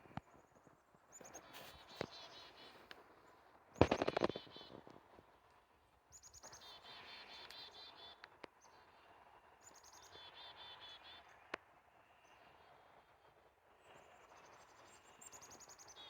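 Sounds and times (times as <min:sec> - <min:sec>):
sharp clicks: 0:03.8 - 0:04.5.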